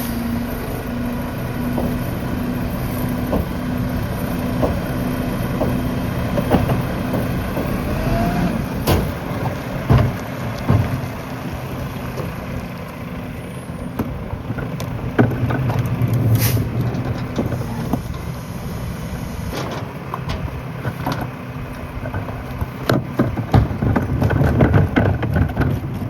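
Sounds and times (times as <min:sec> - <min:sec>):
garbage truck diesel engine: 0:00.0 - 0:26.0
clanks and knocks: 0:01.5 - 0:12.8, 0:13.9 - 0:18.3, 0:19.4 - 0:26.0
heavy thumps: 0:03.1 - 0:08.0.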